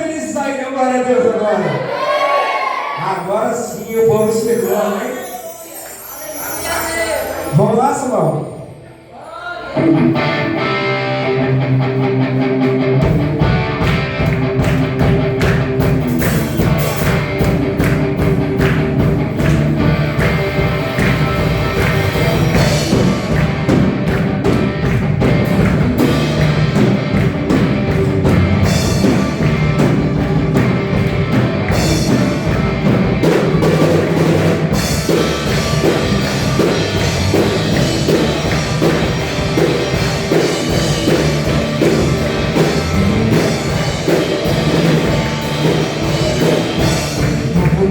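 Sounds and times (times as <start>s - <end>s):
live band music: 3.0s - 9.1s, 9.7s - 47.9s
electric guitar: 9.7s - 47.9s
rock drum beat: 10.2s - 47.9s.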